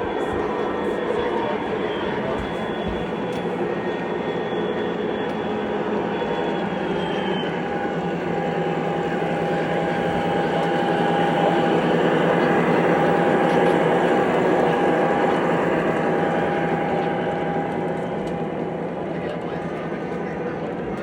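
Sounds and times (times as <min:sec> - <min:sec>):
train running past: 0:00.0 - 0:21.0.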